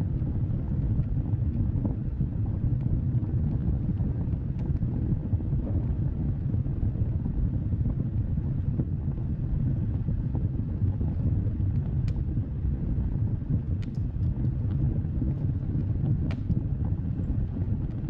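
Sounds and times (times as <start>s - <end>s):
faint fire crackles: 0.0s - 18.0s
wood fire rumbling: 0.0s - 18.0s.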